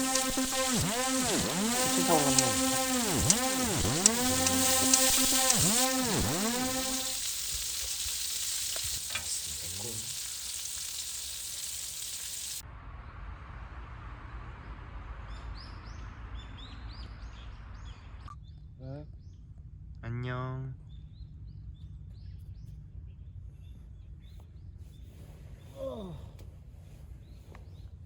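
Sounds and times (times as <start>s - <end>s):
food sizzling in hot oil: 0.0s - 12.6s
low hum: 0.0s - 15.1s.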